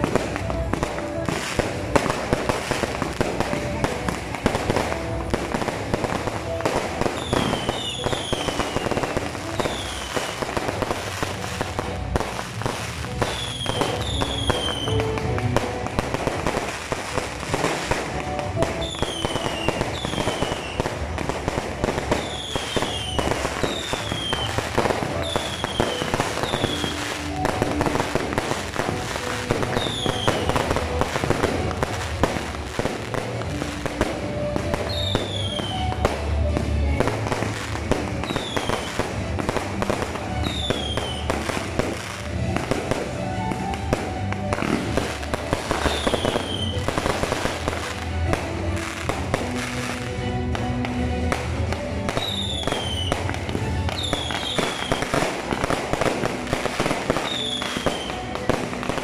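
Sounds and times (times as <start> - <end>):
fireworks crackling and banging: 0.0 - 59.0.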